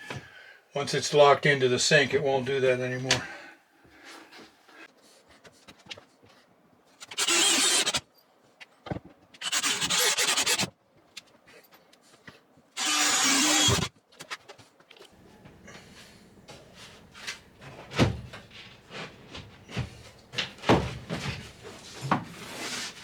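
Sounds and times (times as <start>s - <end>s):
power tool bursts: 7.0s - 8.0s, 9.4s - 10.7s, 12.8s - 13.9s.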